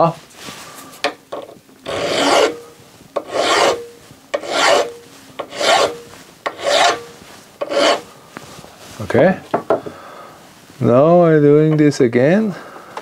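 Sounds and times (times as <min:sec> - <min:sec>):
hand file rasping: 0:01.8 - 0:08.1.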